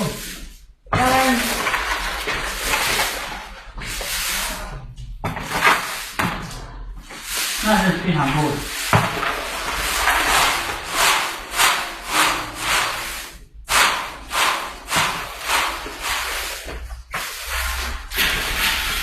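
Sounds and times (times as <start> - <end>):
frying hiss: 7.2 - 19.0
spatula scraping frying pan: 8.2 - 19.0.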